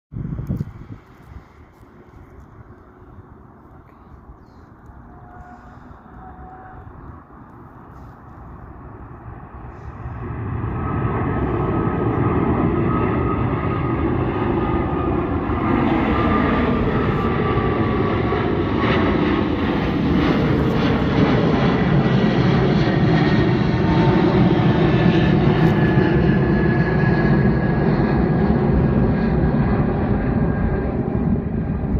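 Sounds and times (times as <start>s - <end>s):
jet engines at takeoff thrust: 0.2s - 31.9s.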